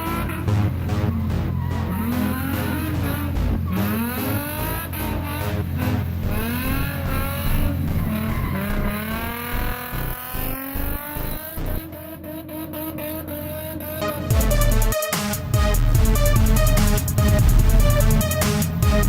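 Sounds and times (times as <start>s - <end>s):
electronic music: 0.0s - 11.9s, 13.9s - 19.0s
car engine revving hard: 0.0s - 19.0s
tyre squeal: 1.2s - 9.6s.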